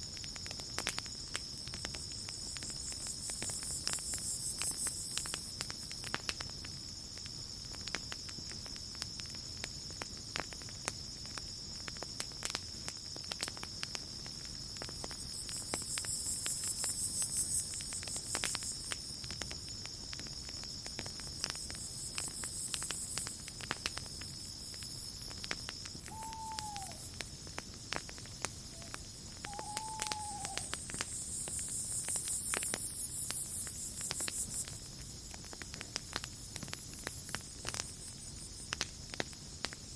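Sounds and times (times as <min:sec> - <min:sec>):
campfire crackling and popping: 0:00.0 - 0:39.9
crickets chirring: 0:00.0 - 0:39.9
high insect tone: 0:14.6 - 0:35.2.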